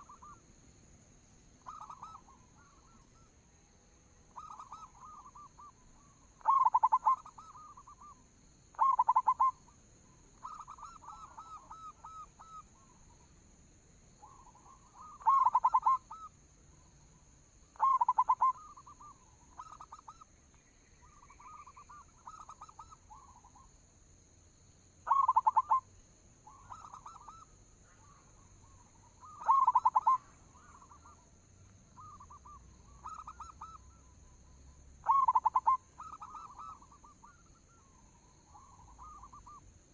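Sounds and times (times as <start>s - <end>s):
dove cooing: 1.7s - 3.3s, 4.4s - 5.7s, 6.4s - 8.0s, 8.8s - 9.6s, 14.2s - 16.3s, 17.8s - 20.2s, 25.1s - 25.8s, 29.2s - 31.0s, 32.0s - 33.8s, 35.0s - 37.9s.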